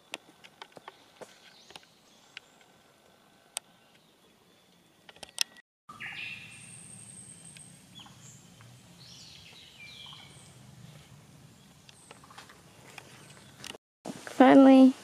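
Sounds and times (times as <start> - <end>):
birds chirping and calling: 3.6 - 13.8.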